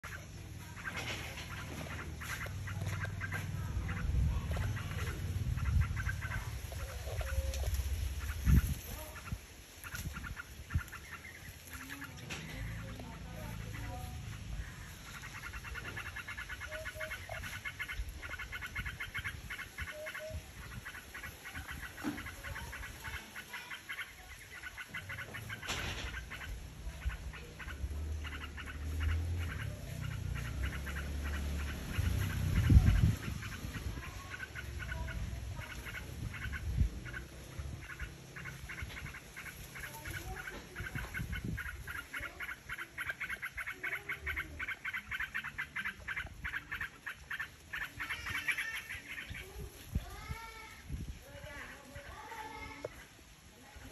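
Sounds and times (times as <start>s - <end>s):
high bird chirps: 0.0s - 50.6s
low rumble on microphone: 28.9s - 39.2s.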